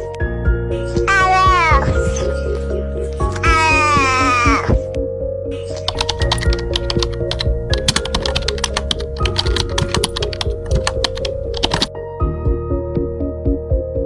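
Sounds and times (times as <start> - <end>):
background music with held notes: 0.0 - 14.0
fast uneven clicking: 5.9 - 11.9.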